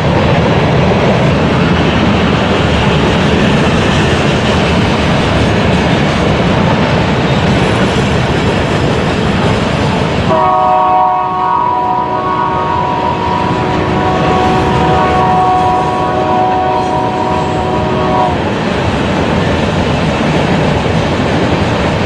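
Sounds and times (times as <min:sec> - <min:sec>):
train passing rumble: 0:00.0 - 0:22.0
locomotive horn chord: 0:10.3 - 0:18.4.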